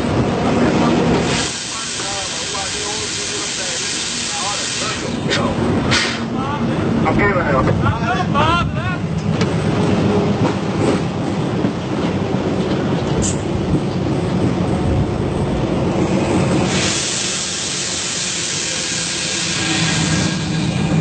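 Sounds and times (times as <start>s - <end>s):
train rumbling on rails: 0.0s - 21.0s
loud hiss: 1.2s - 6.3s, 16.6s - 21.0s.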